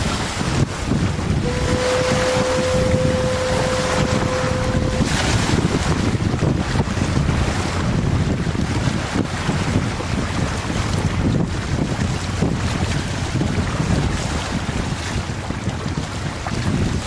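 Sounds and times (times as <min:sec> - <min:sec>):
rumble of water and boat: 0:00.0 - 0:17.0
wind buffeting microphone: 0:00.0 - 0:17.0
long steady horn note: 0:01.2 - 0:06.1.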